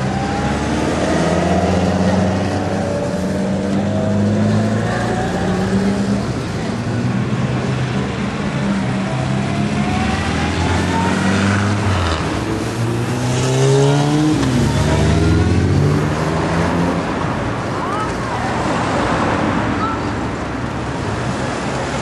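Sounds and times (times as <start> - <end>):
car engines driving past: 0.0 - 22.0
motorcycle passing close: 8.6 - 17.0.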